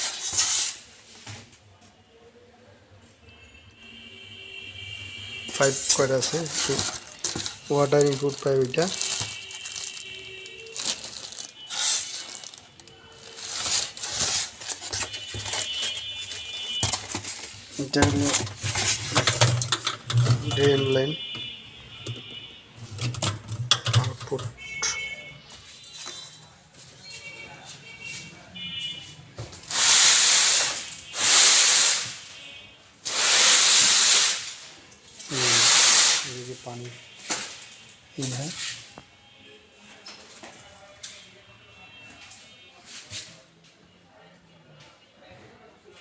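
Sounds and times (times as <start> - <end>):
plastic rustling and knocking: 5.5 - 24.6
loud hissing bursts: 29.7 - 32.2, 33.1 - 34.5, 35.3 - 36.4.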